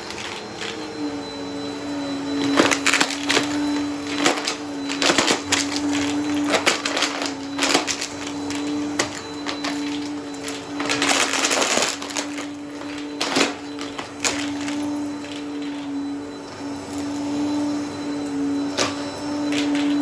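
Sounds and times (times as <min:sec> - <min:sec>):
vacuum cleaner motor hum: 0:00.0 - 0:20.0
debris crackling in vacuum: 0:02.4 - 0:15.9.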